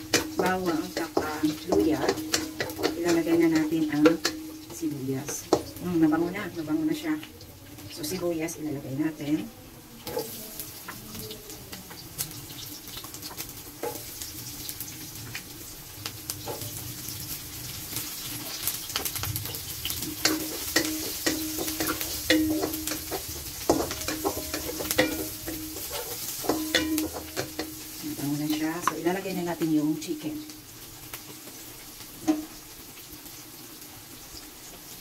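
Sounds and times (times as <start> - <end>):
spatula scraping and knocking pan: 0.0 - 5.8, 19.0 - 29.1
vegetables sizzling in oil: 0.0 - 35.0.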